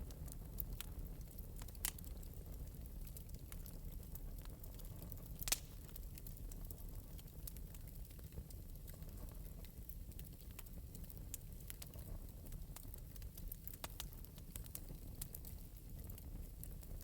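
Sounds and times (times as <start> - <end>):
low fire rumble: 0.0 - 17.0
wood fire crackling and popping: 0.0 - 17.0.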